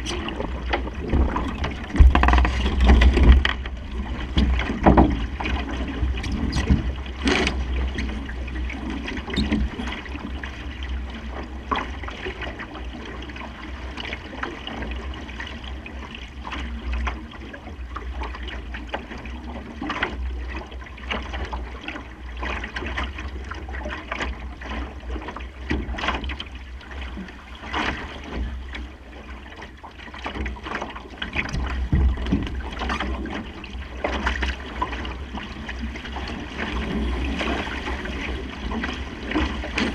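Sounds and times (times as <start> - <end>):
wind rumble on microphone: 0.0 - 18.2
water splashing against boat hull: 0.0 - 39.9.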